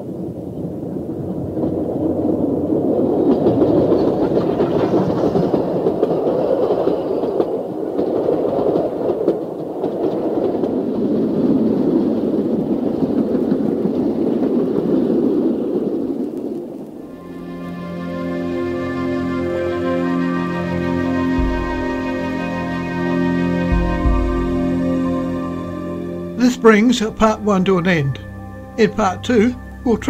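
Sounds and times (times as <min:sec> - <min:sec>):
train wheels rumbling on rails: 0:00.6 - 0:18.0.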